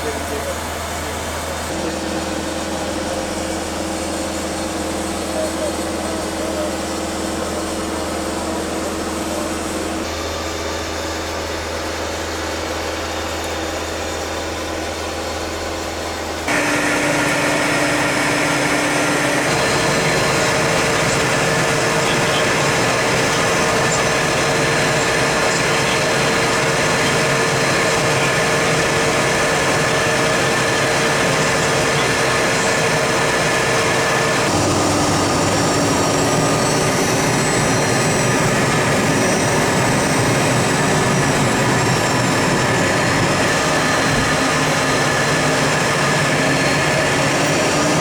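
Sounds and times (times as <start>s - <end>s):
jet engine whine: 0.0s - 48.0s
jet cabin hum: 16.5s - 47.9s.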